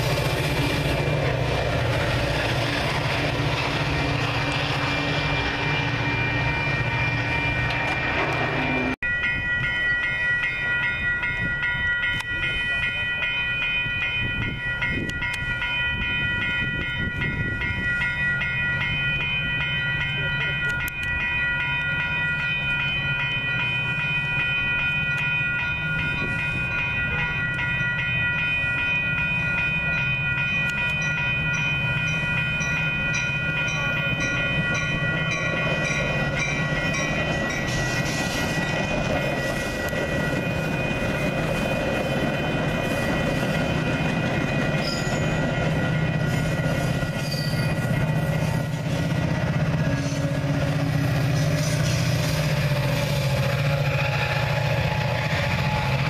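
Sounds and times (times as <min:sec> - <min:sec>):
crossing warning bell ringing: 0:00.0 - 0:56.0
diesel locomotive engine hum: 0:00.0 - 0:56.0
train wheels clacking over rails: 0:33.1 - 0:56.0.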